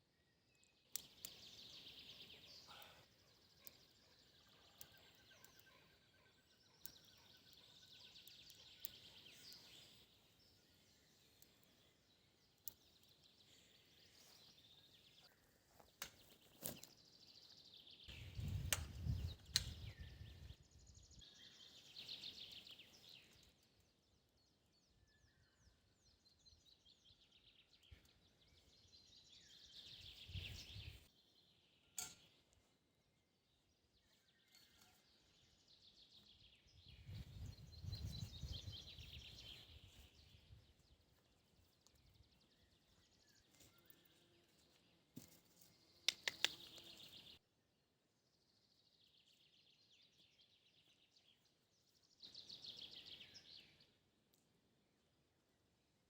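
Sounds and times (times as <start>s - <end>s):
songbirds singing: 0.0s - 56.0s
small clicks and snaps: 0.6s - 1.5s, 46.0s - 47.1s.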